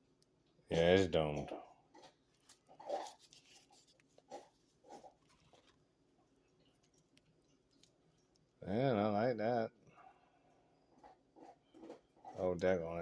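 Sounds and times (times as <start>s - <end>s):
soft rubbing scrapes: 1.9s - 6.8s.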